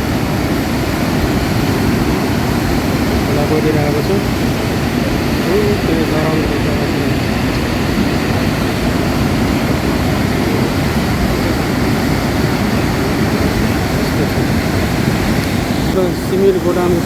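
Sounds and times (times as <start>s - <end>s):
flooded river rushing: 0.0s - 17.0s.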